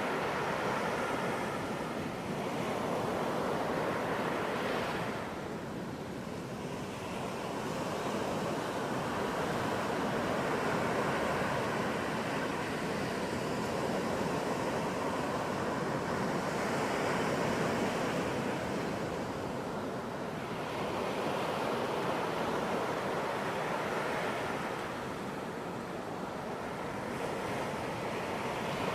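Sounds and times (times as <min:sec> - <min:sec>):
ocean surf breaking: 0:06.6 - 0:28.9.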